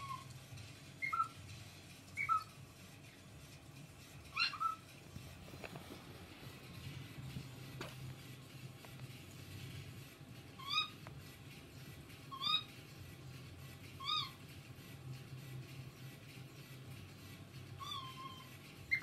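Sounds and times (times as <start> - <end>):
cockatiel calling: 1.0 - 1.4, 2.2 - 2.5, 4.3 - 4.8, 10.6 - 11.0, 12.3 - 12.7, 14.0 - 14.4, 17.8 - 19.0.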